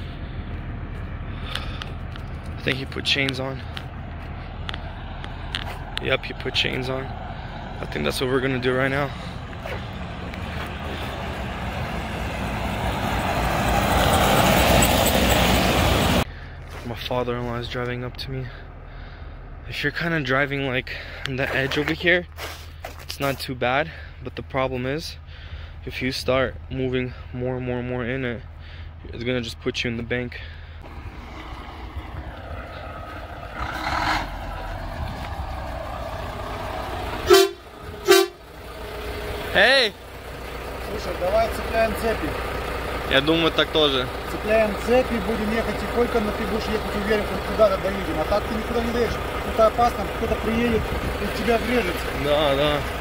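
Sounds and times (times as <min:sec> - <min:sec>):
road noise: 0:00.0 - 0:53.0
truck engine rumble: 0:00.0 - 0:53.0.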